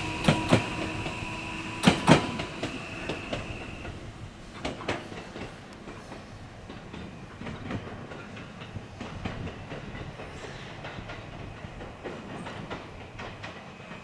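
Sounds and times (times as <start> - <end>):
train running rumble: 0.0 - 14.0
wheels clicking over rail joints: 0.0 - 14.0.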